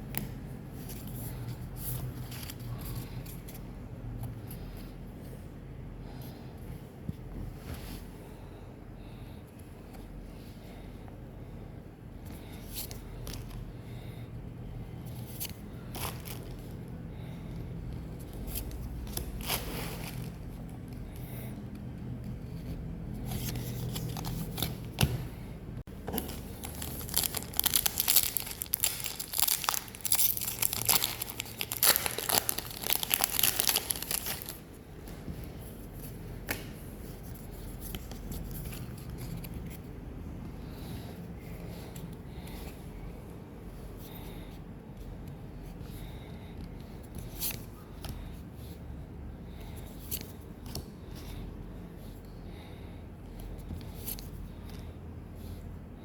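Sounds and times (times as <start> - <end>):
wrapper being torn and crinkled: 26.2 - 34.6.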